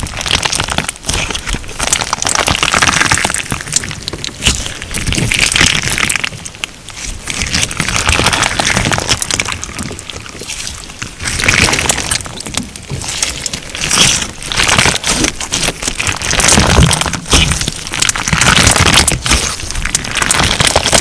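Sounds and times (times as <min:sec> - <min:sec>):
slime squishing and crackling: 0:00.0 - 0:21.0.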